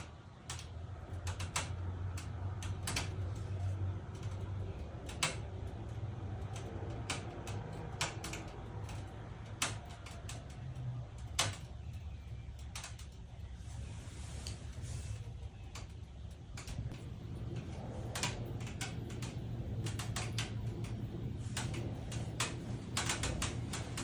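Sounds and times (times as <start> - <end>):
sharp clicks and ticks: 0.0 - 13.6, 15.2 - 24.0
air conditioner humming: 0.0 - 24.0.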